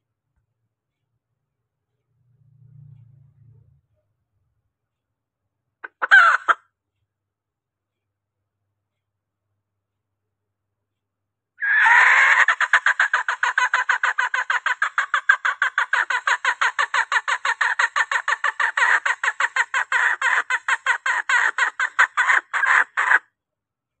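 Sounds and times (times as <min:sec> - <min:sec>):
hen rapid clucking call: 0:05.8 - 0:06.6, 0:11.6 - 0:23.2.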